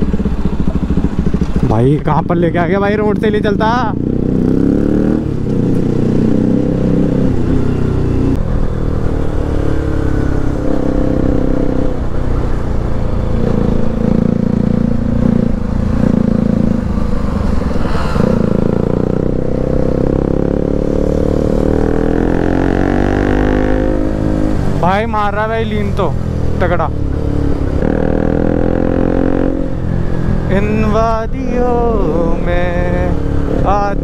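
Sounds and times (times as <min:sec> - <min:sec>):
motorcycle engine revving: 0:00.0 - 0:34.0
wind rushing: 0:12.9 - 0:24.8.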